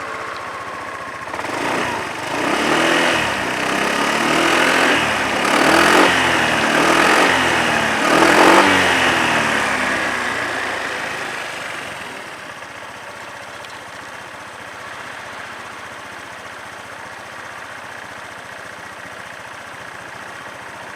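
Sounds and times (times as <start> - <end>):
scooter engine revving and idling: 0.0 - 20.9.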